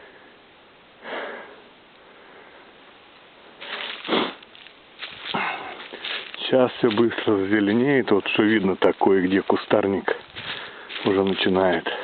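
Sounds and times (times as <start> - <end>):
person sniffing: 3.6 - 4.4.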